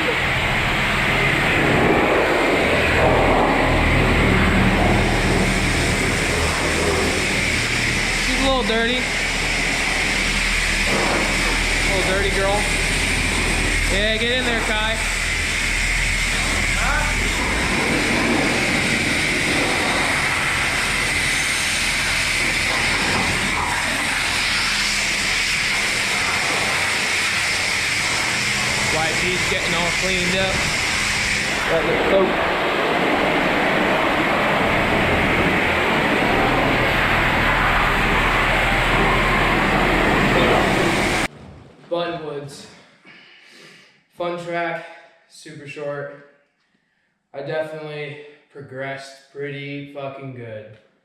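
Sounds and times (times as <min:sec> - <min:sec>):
pressure washer motor humming: 0:00.0 - 0:41.3
water spray hissing: 0:01.0 - 0:41.3.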